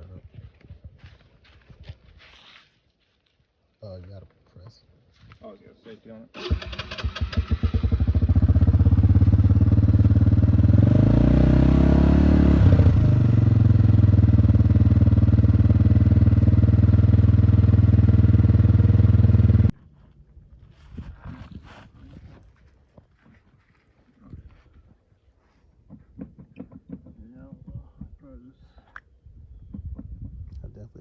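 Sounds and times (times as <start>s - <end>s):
atv engine running: 6.4s - 19.7s.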